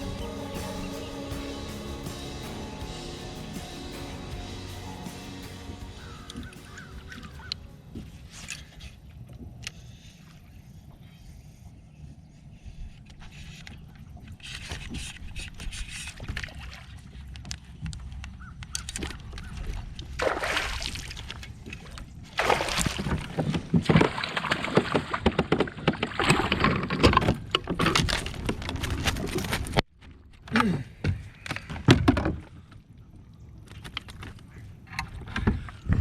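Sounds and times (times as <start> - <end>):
water splashing against a kayak: 18.8 - 30.2.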